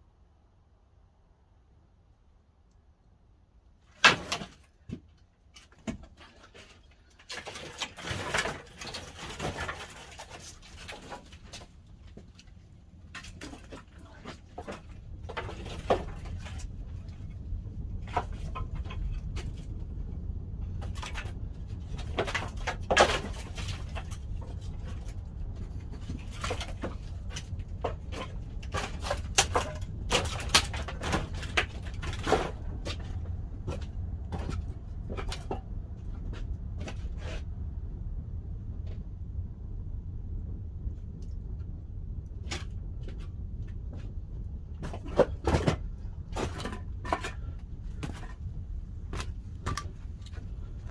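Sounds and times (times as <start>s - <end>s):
fire rumbling: 6.2s - 50.9s
fire crackling and popping: 9.6s - 36.8s.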